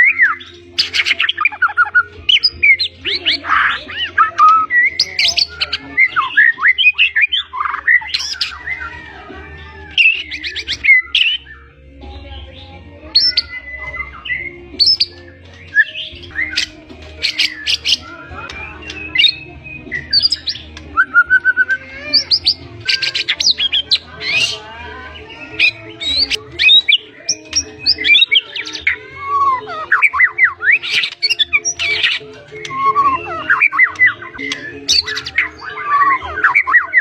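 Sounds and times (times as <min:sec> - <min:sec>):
bird singing whistles and chirps: 0:00.0 - 0:09.2, 0:09.9 - 0:24.6, 0:25.3 - 0:37.0.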